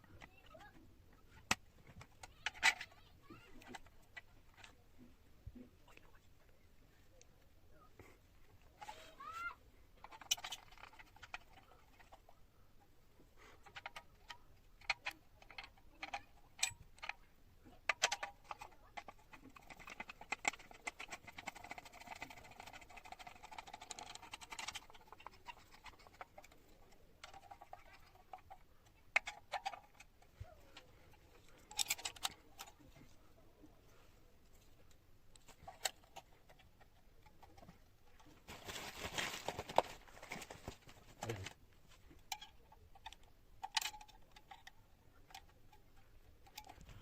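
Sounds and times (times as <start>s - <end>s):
clicks and knocks of tools: 1.4s - 4.8s, 13.6s - 17.2s, 17.8s - 33.2s, 34.5s - 38.4s, 39.0s - 47.0s.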